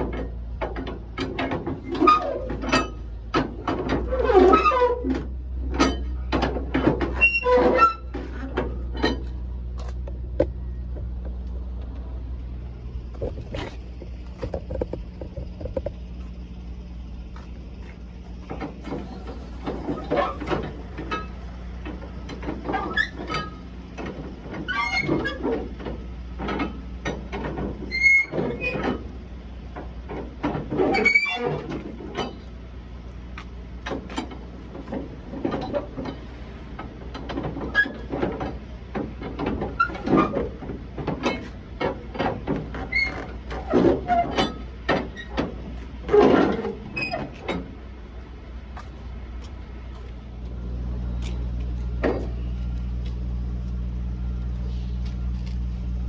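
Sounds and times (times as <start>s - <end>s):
short squeaks: 1.8s - 9.3s, 22.2s - 23.7s, 24.6s - 25.7s, 27.8s - 29.1s, 30.7s - 32.5s, 37.5s - 38.2s, 42.2s - 47.8s
steady low hum: 8.0s - 24.7s, 40.5s - 56.0s
knocks and clicks: 13.1s - 16.0s.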